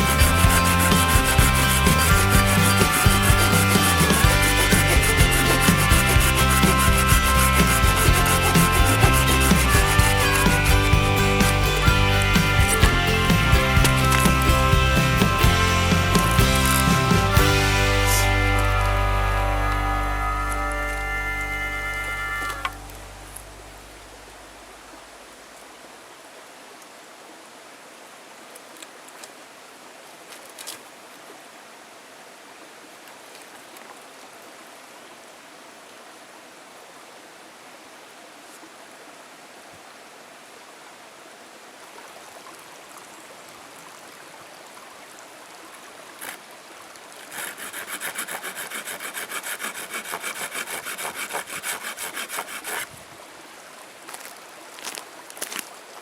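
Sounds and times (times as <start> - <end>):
saw cutting wood: 0.0 - 23.0, 47.2 - 53.0
faint outdoor hiss: 0.0 - 56.0.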